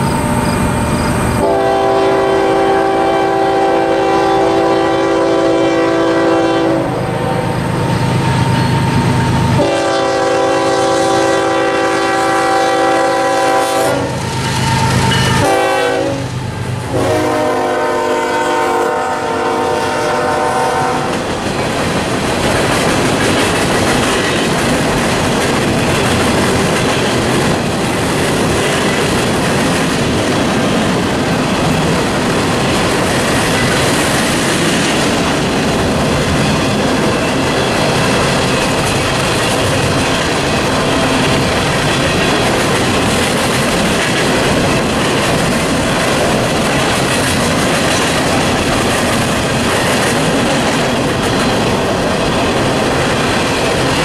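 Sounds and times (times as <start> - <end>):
freight cars rumbling on rails: 0.0 - 54.0
locomotive air horn blasts: 1.4 - 7.4, 9.6 - 14.2, 14.8 - 16.3, 16.9 - 21.2.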